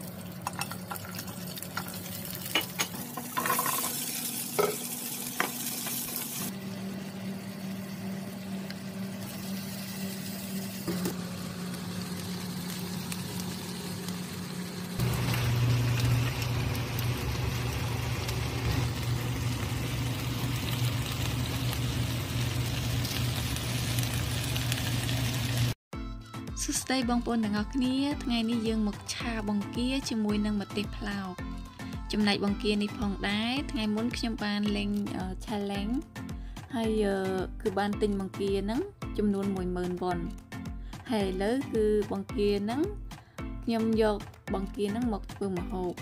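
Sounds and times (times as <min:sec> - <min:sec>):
shrimp and peppers sizzling in pan: 0:00.0 - 0:06.7, 0:09.2 - 0:25.8.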